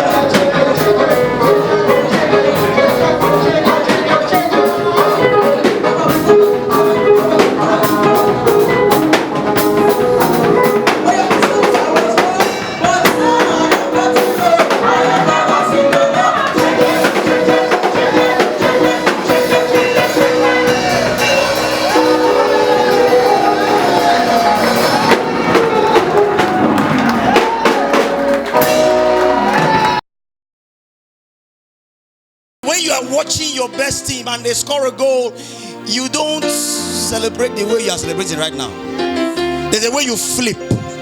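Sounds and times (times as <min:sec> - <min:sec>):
person singing: 0:00.0 - 0:26.6
band playing upbeat gospel: 0:00.0 - 0:30.0, 0:32.6 - 0:41.0.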